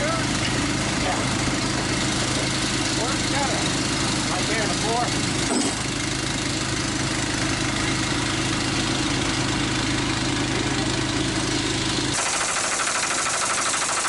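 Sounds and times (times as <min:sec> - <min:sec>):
engine idling: 0:00.0 - 0:14.0
fast rattle: 0:12.2 - 0:14.0.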